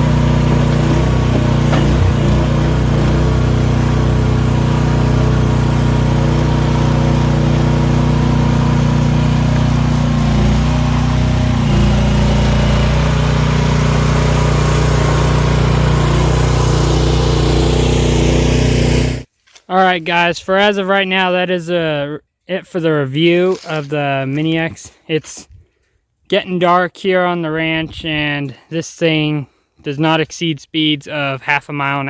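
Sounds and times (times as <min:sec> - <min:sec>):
mini excavator engine running: 0:00.0 - 0:19.3.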